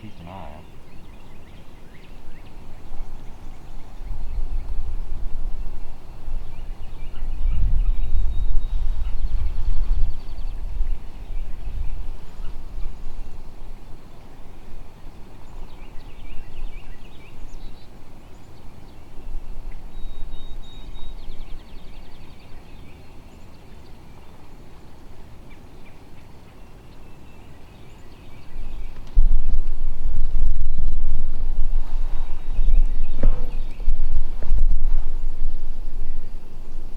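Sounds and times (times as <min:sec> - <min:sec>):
wind on microphone: 0:00.0 - 0:23.0, 0:27.9 - 0:36.9
birds chirping: 0:00.0 - 0:36.9
bird trills: 0:14.1 - 0:24.4.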